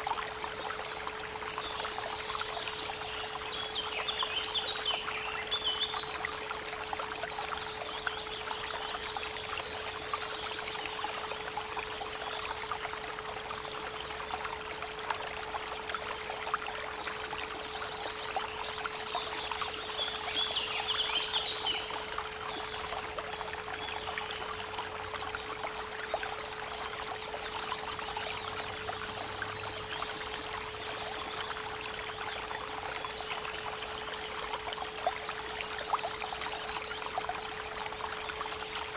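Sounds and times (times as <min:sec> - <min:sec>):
birds singing: 0:00.0 - 0:38.9
creek water running: 0:00.0 - 0:38.9.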